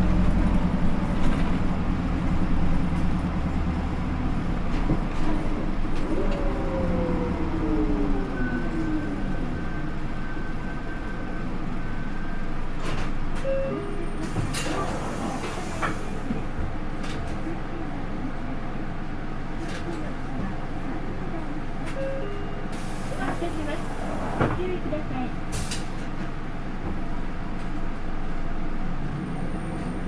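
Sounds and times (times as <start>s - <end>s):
bus engine rumble: 0.0s - 30.0s
short beeps: 13.4s - 14.0s, 22.0s - 22.6s.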